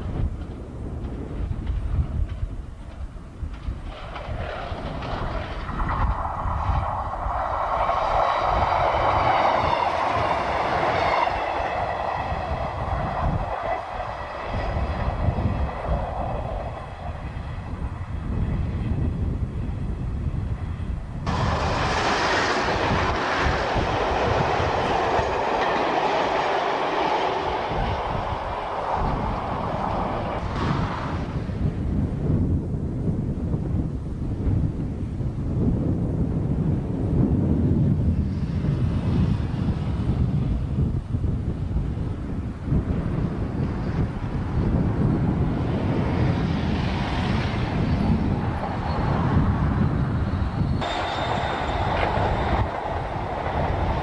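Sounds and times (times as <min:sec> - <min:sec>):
wheels clattering on rails: 0:00.0 - 0:19.3, 0:21.2 - 0:31.6, 0:42.8 - 0:54.0
diesel train rushing past: 0:00.0 - 0:32.6, 0:36.0 - 0:54.0
train engine whine: 0:00.0 - 0:33.1, 0:33.7 - 0:54.0.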